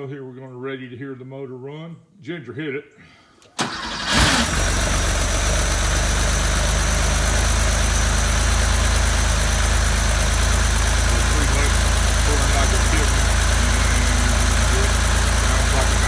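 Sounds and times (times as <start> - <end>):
car engine starting and idling: 3.6 - 16.0.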